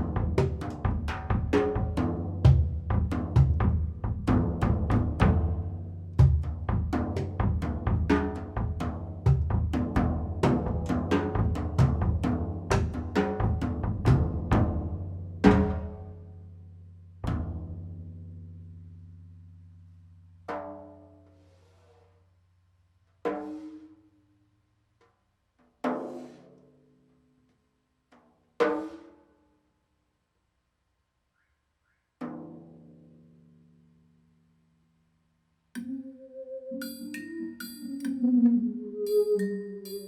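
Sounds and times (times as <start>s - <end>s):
fast drum strikes: 0.0s - 16.0s.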